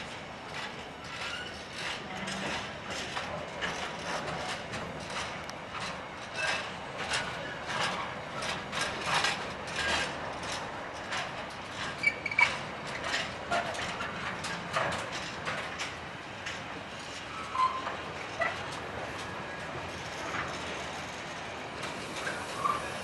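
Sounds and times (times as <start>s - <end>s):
freight wagon wheels clattering: 0.4s - 23.0s
wheel squeal: 1.0s - 2.6s, 11.9s - 12.6s, 17.3s - 18.6s, 22.1s - 23.0s.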